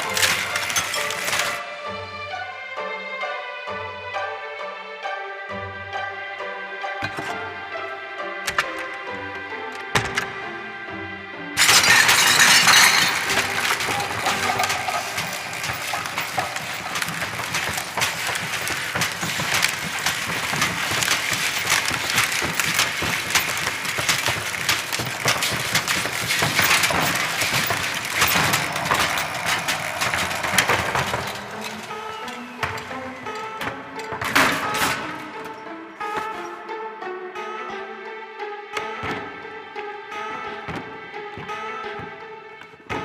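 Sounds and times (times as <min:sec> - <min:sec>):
vacuum cleaner rattling: 0:00.0 - 0:01.6, 0:11.6 - 0:35.6
music: 0:00.0 - 0:43.0.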